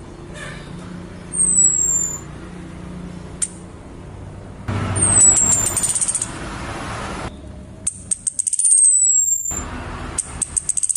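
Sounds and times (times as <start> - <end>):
thrush call whistle and rattle: 1.4 - 2.3, 5.0 - 6.4, 7.9 - 9.6, 10.2 - 10.9.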